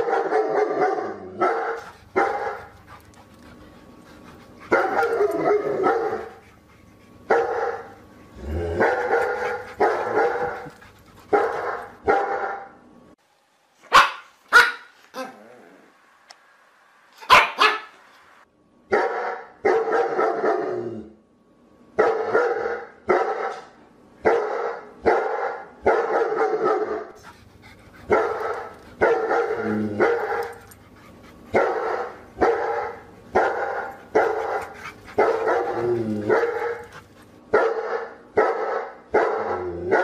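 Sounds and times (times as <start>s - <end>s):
dog barking: 0.0s - 2.7s, 4.7s - 6.3s, 7.3s - 7.9s, 8.8s - 10.7s, 11.3s - 12.7s, 13.9s - 15.3s, 17.2s - 18.0s, 18.9s - 20.7s, 22.0s - 27.1s, 28.1s - 30.6s, 31.5s - 36.9s, 37.5s - 40.0s.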